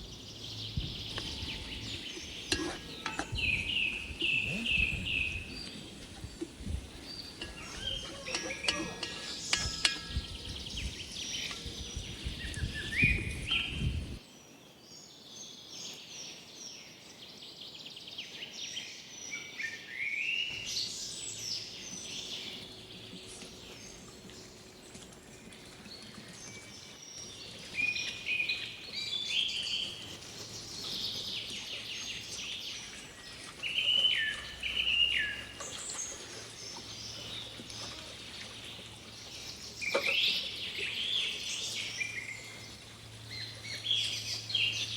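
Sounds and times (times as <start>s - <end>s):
birds chirping and singing: 0.0s - 14.2s.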